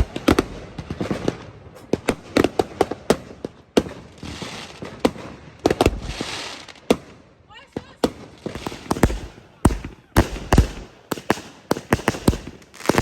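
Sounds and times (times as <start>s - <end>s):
fireworks bangs and cracks: 0.0s - 13.0s
fireworks hissing crackle: 3.4s - 6.9s, 8.2s - 13.0s.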